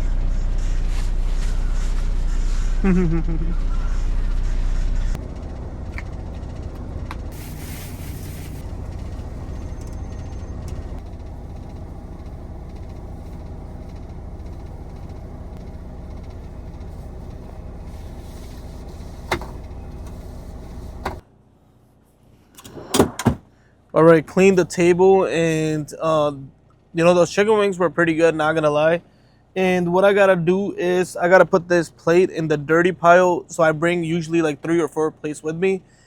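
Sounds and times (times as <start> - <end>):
semi truck idling rumble: 2.9 - 21.2.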